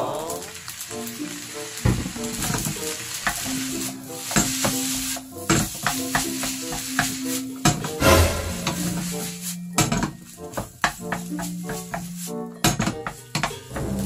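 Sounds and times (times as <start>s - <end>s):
fried rice sizzling in a pan: 0.0s - 14.0s
spatula scraping a pan: 3.8s - 12.4s
spatula knocking against a pan: 5.5s - 8.0s.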